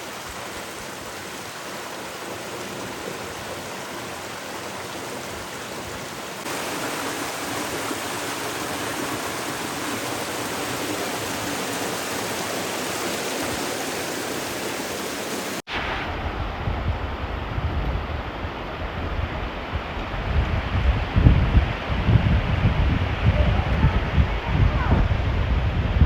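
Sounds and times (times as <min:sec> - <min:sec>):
rushing water: 0:00.0 - 0:26.0
wind rumble on microphone: 0:15.7 - 0:26.0.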